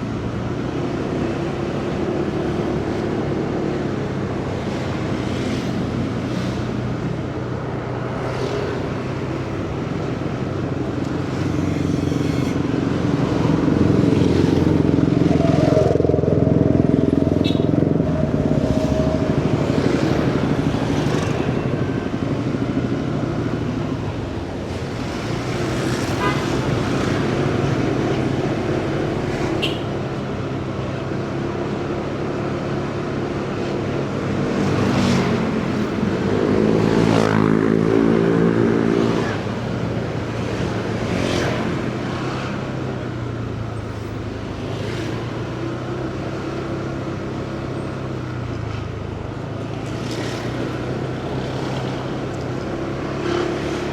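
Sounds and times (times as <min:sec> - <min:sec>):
city traffic noise: 0:00.0 - 0:53.9
vehicle passing by: 0:34.4 - 0:42.8.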